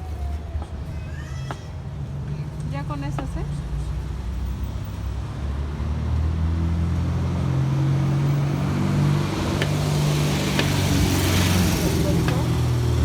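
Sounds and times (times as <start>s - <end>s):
car engine running: 9.2s - 13.0s.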